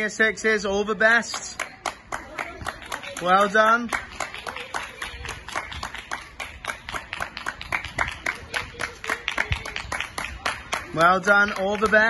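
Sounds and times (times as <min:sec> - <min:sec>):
people applauding: 0:01.3 - 0:12.0.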